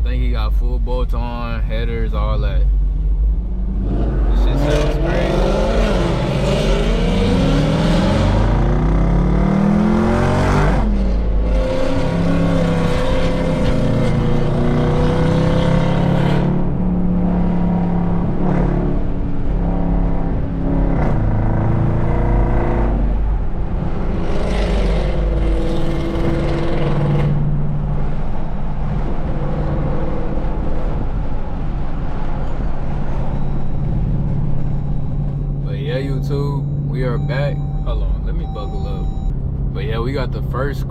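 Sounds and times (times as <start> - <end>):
car engine revving loudly: 3.7 - 16.7.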